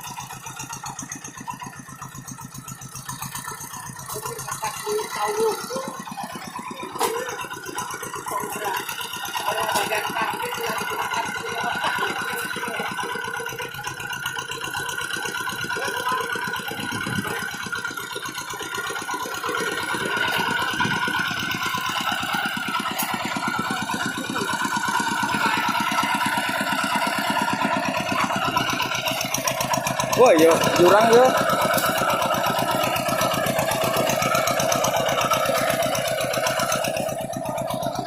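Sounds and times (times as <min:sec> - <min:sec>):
hand tractor engine chugging: 0:00.0 - 0:38.0.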